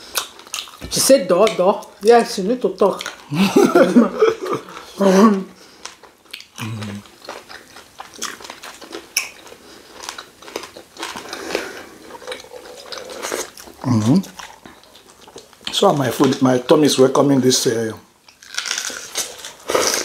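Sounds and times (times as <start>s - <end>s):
chewing and wet mouth smacks: 0.1s - 1.6s, 5.8s - 15.8s
person speaking: 0.8s - 5.6s, 6.6s - 7.1s
person humming: 6.6s - 7.0s.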